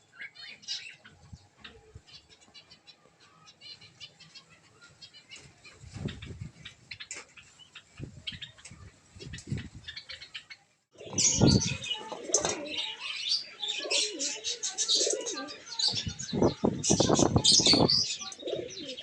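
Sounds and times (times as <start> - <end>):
small birds chirping: 0.0 - 19.0
pigeons cooing: 11.0 - 19.0.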